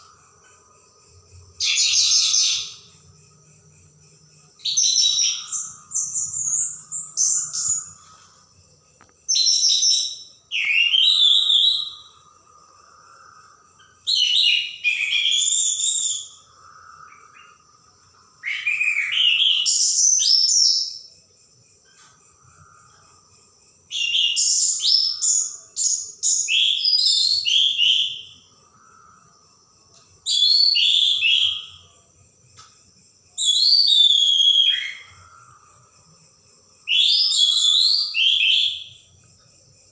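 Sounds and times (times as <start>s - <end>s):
thrush singing sliding whistles: 9.3s - 12.1s, 33.4s - 35.2s, 36.9s - 39.0s.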